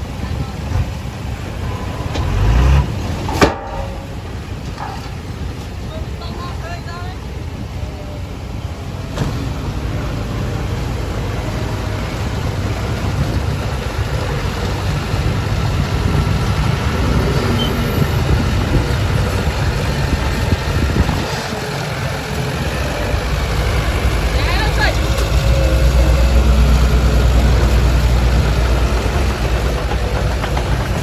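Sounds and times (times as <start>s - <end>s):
heavy diesel engine rumbling: 0.0s - 31.0s.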